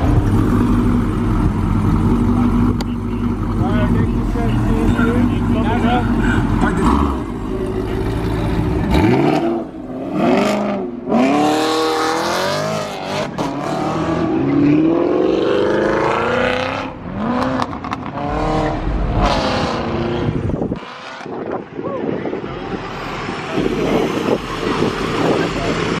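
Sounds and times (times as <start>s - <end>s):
cars accelerating past: 4.4s - 21.6s.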